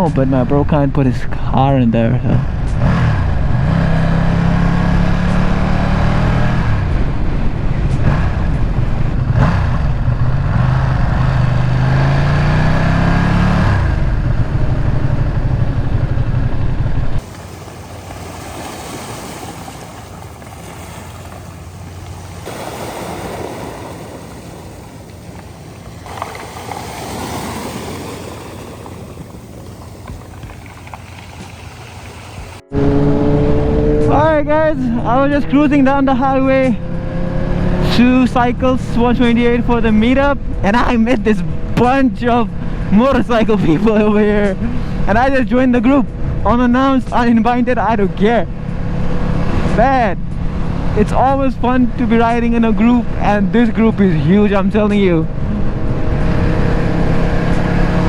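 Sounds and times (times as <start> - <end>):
motorcycle engine accelerating: 2.2 - 18.5, 20.7 - 45.2, 54.8 - 58.0
steady rushing noise: 13.6 - 36.8.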